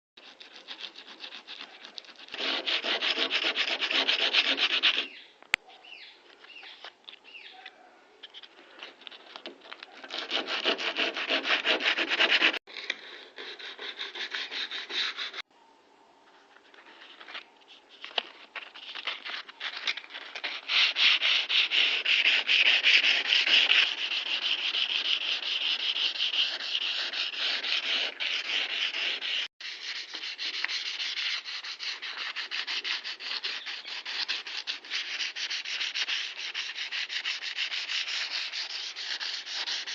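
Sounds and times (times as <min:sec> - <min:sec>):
sanding a metal panel: 0:00.2 - 0:05.1, 0:10.0 - 0:12.6, 0:13.3 - 0:15.4, 0:20.4 - 0:39.9.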